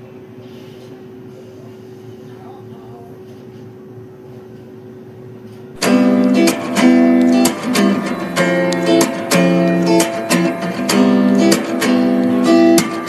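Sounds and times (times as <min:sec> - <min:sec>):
air fryer fan hum: 0:00.0 - 0:13.0
strummed acoustic guitar music: 0:05.8 - 0:13.0.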